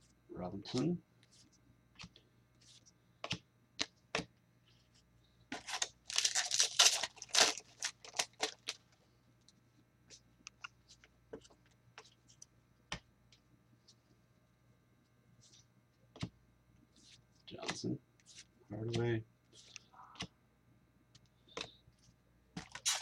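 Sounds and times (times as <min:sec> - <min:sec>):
card pack wrapper tearing: 0:05.6 - 0:08.8, 0:22.6 - 0:23.0.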